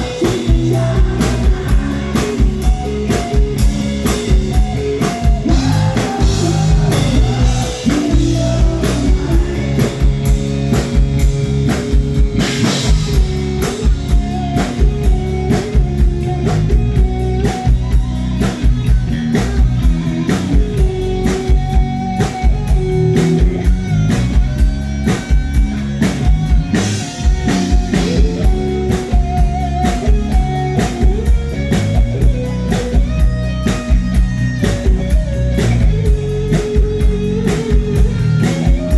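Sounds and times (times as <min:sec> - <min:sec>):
sustained melody line: 0:00.0 - 0:18.4
drum kit beat: 0:00.0 - 0:38.9
guitar: 0:00.0 - 0:38.9.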